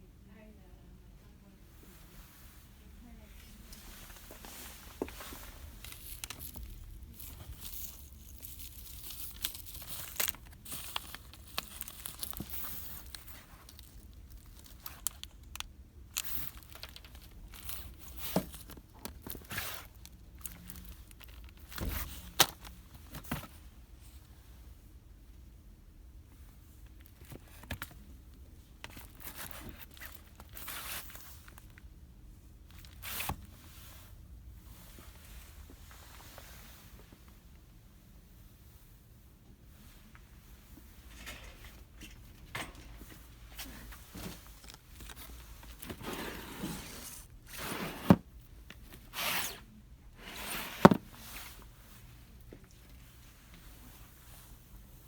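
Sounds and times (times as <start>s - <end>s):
packaging crinkling and rustling: 4.1s - 23.6s, 28.8s - 31.9s, 43.0s - 51.7s.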